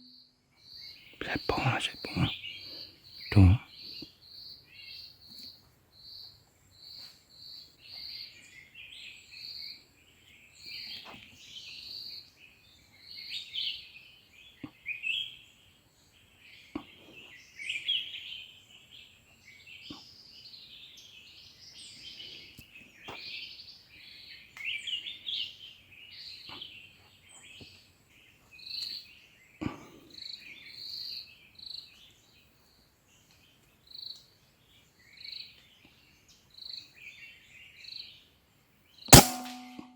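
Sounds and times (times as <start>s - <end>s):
small birds chirping: 0.0s - 39.4s
short high repeated notes: 39.2s - 39.9s.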